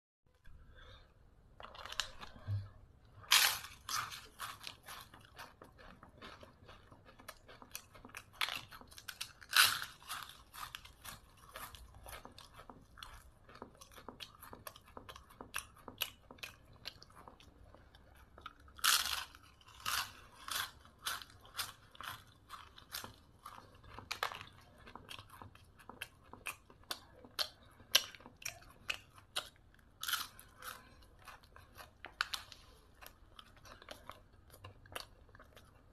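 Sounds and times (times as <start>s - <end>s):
crisp snack crunching: 1.6s - 2.5s, 3.2s - 17.4s, 18.4s - 35.9s.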